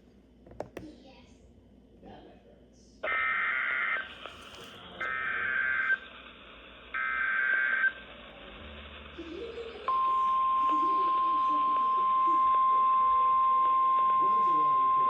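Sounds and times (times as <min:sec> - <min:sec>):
radio hiss: 0:03.0 - 0:15.0.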